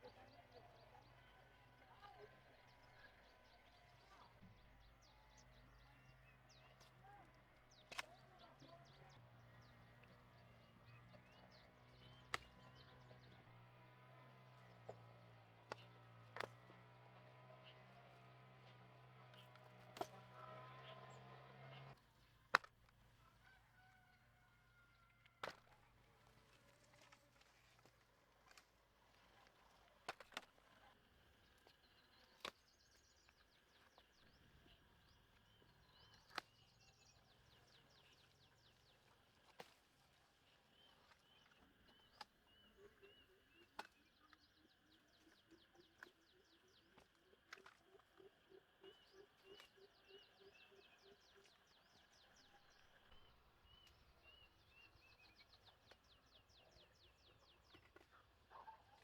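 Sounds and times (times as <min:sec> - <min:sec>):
birds chirping and trilling: 0:40.6 - 0:59.0.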